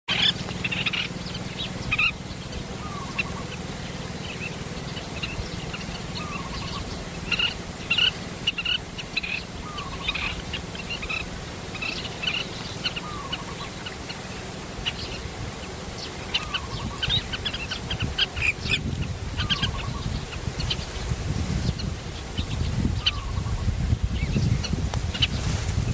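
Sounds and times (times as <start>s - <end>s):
bird falling call: 0.1s - 18.5s
birds chirping: 0.1s - 25.9s.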